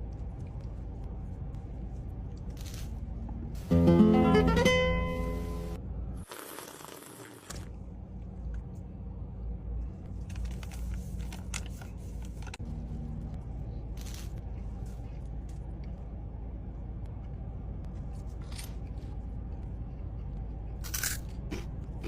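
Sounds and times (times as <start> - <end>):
plucked guitar chord: 3.7 - 5.8.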